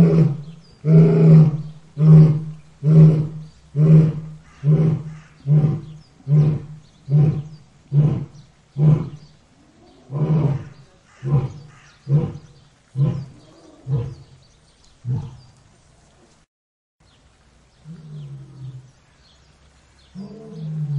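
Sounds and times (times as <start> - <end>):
lion roaring: 0.0 - 14.4, 15.0 - 15.6, 17.8 - 18.9, 20.1 - 20.9.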